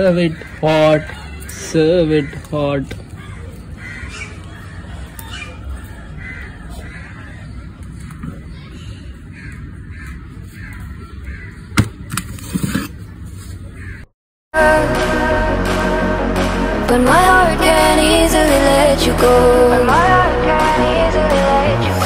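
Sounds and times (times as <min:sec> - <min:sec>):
birds calling: 0:00.0 - 0:14.1
music: 0:14.6 - 0:22.0.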